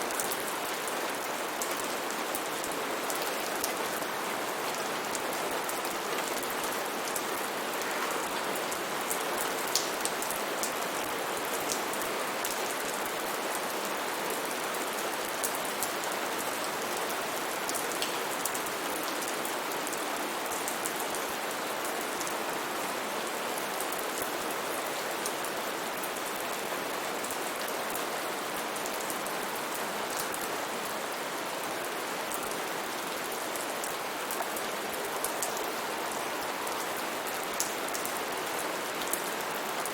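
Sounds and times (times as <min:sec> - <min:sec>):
steady rain falling: 0:00.0 - 0:39.9
raindrops pattering on a surface: 0:04.8 - 0:22.4.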